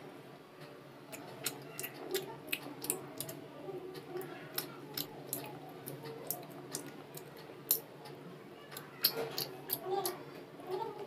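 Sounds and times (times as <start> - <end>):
murmur of voices: 0.0 - 11.0
child chewing crunchy food: 1.1 - 3.4, 4.0 - 7.9, 8.8 - 10.2.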